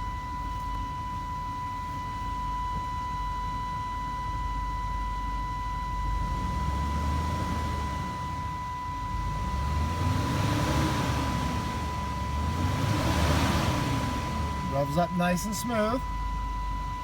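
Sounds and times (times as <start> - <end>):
steady high-pitched tone: 0.0 - 17.0
van engine revving: 6.0 - 16.3.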